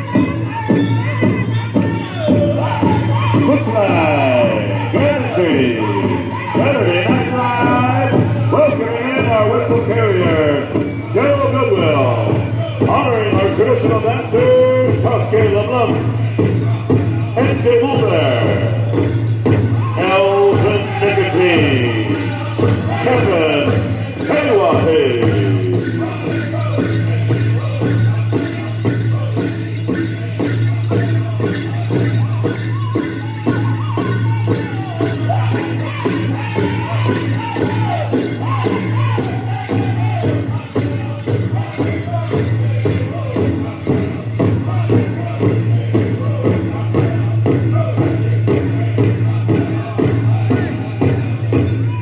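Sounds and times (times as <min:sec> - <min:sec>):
group singing in unison: 0:00.0 - 0:52.0
gourd rattles shaken: 0:19.5 - 0:46.8.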